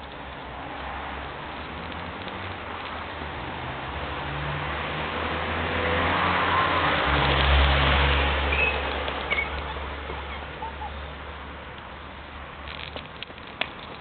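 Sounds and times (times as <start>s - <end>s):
car passing by: 0.5s - 10.4s.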